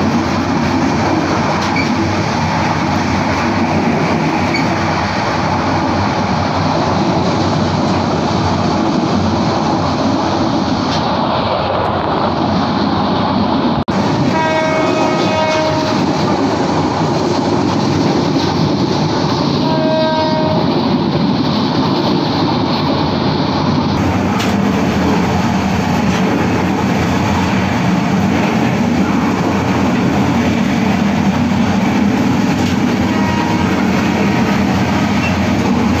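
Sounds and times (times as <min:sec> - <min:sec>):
train running noise from on board: 0:00.0 - 0:36.0
train horn: 0:14.2 - 0:16.2, 0:19.6 - 0:20.8, 0:32.9 - 0:34.4.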